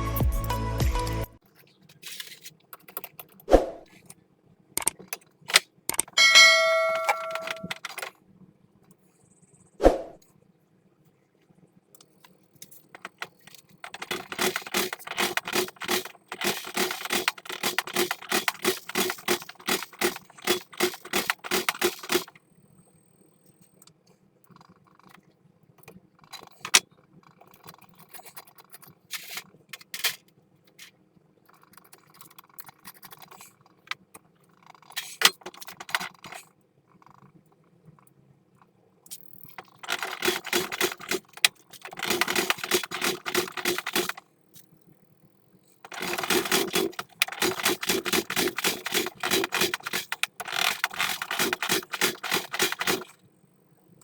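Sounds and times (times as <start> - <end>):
metallic clicking and rattling: 4.8 - 8.2, 12.0 - 22.4, 39.1 - 44.7, 45.8 - 53.2.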